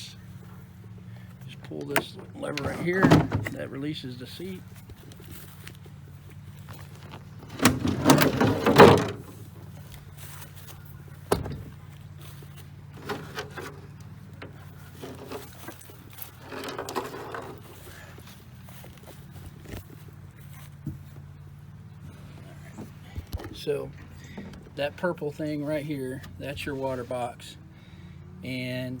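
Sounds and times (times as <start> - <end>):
loud clunks and scraping: 1.7 - 3.8, 6.7 - 21.3.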